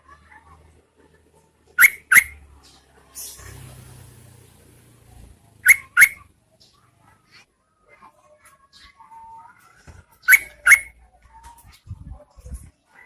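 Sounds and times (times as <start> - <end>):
bird giving sharp quick calls: 1.8 - 2.4, 5.6 - 6.2, 10.2 - 10.9.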